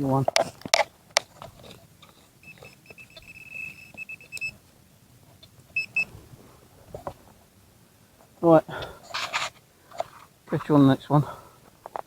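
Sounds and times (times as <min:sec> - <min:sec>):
metal detector beeping: 0:01.6 - 0:04.6, 0:05.7 - 0:06.1.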